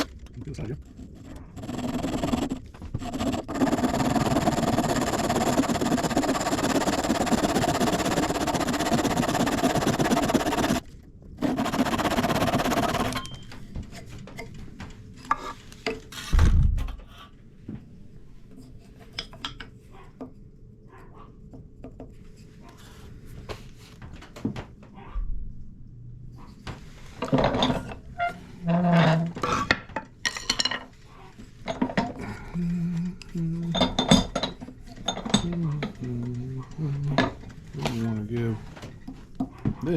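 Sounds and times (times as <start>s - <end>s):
saw cutting wood: 1.1s - 13.3s.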